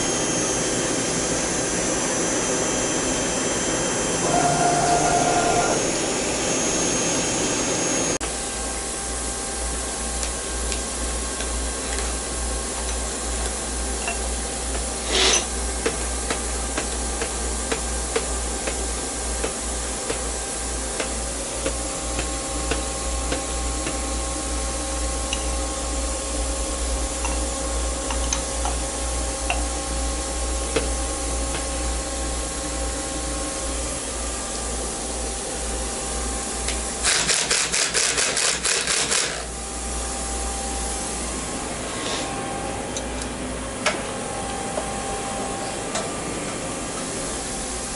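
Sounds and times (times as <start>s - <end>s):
machine tool cutting metal: 15.0s - 15.5s, 37.0s - 39.5s.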